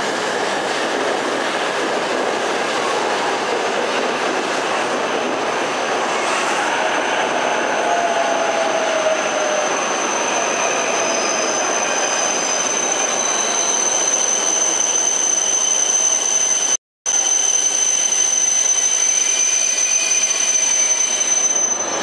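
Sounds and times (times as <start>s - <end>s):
faint wheel squeal: 6.2s - 16.7s.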